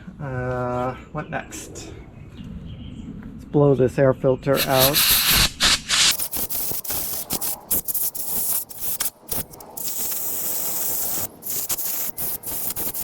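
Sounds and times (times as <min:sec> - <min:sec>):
compressed air hissing blasts: 0:04.6 - 0:13.0.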